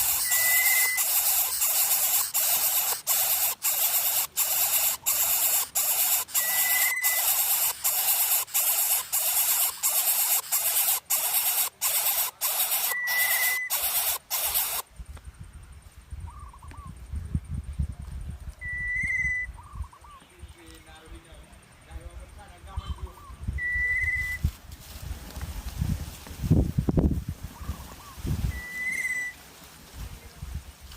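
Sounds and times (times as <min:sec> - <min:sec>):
nestlings hissing harshly: 0:00.0 - 0:14.9
short thin whistle: 0:00.2 - 0:01.0, 0:18.6 - 0:19.5, 0:23.6 - 0:24.4, 0:28.5 - 0:29.4.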